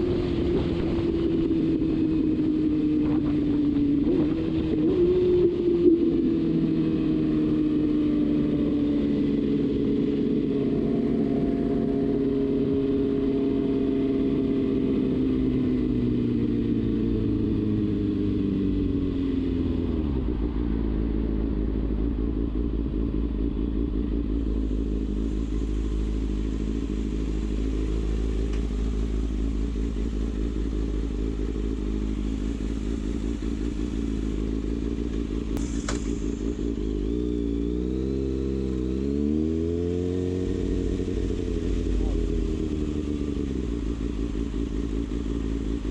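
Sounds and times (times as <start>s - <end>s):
motorcycle engine droning: 0.0s - 45.9s
short click: 35.6s - 36.2s.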